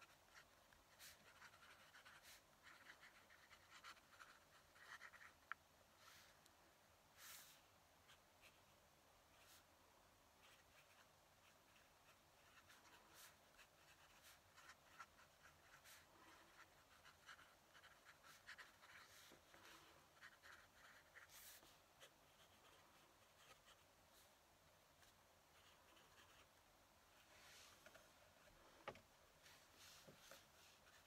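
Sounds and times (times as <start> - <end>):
pen nib scratching on paper: 0.0 - 5.6, 10.4 - 23.8, 25.5 - 26.5.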